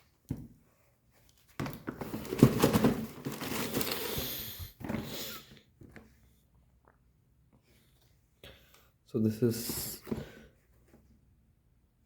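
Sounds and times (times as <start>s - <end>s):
shoe handling rustling: 0.0s - 5.3s.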